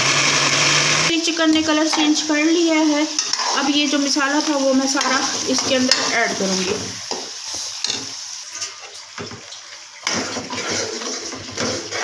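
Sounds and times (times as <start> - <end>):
chicken frying in oil: 0.0 - 12.0
metal spoon scraping a pan: 3.1 - 9.0, 10.0 - 12.0.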